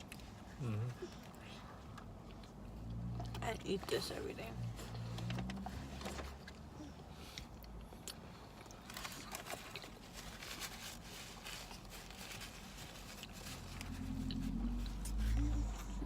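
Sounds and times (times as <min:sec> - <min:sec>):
food packaging rustling: 0:08.8 - 0:15.4
steady low rumble: 0:13.2 - 0:16.0.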